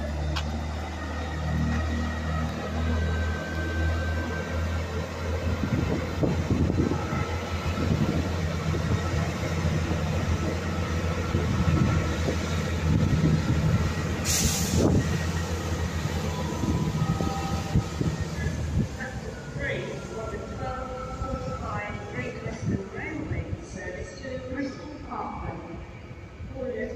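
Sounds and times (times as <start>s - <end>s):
diesel train engine drone: 0.0s - 26.9s
short sharp hiss: 14.3s - 14.8s.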